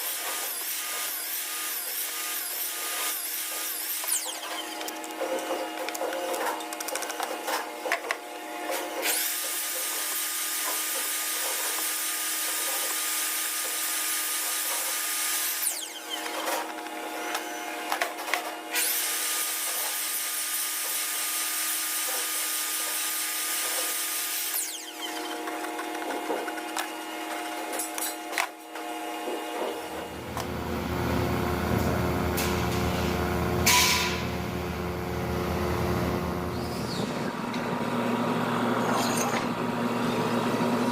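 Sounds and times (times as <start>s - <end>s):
power tool whirring: 0.0s - 30.6s.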